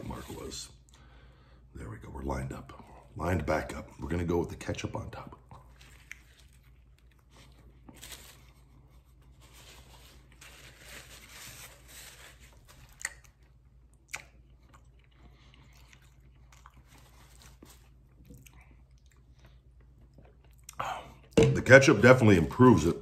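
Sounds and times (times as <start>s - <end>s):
man chewing food: 5.4s - 9.5s, 12.5s - 21.4s.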